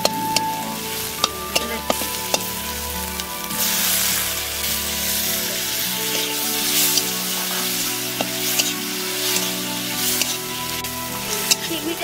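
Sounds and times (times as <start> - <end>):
background music: 0.0 - 12.0
vegetables sizzling in oil: 0.0 - 12.0
metal spatula scraping pan: 6.1 - 10.6.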